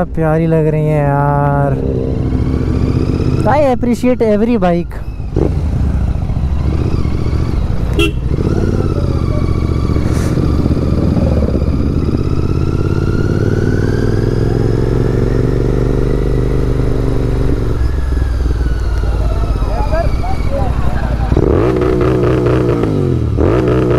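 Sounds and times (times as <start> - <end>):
motorcycle engine running: 0.9 - 3.8, 5.0 - 23.9.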